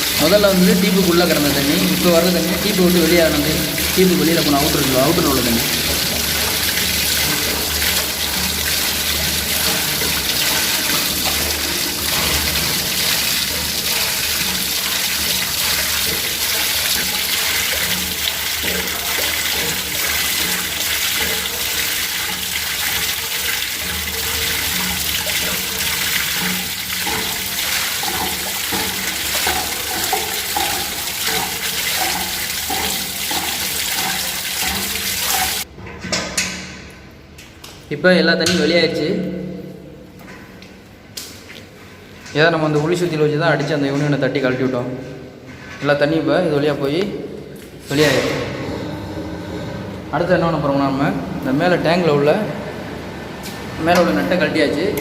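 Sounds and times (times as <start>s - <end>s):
water gushing from pipe: 0.0s - 35.7s.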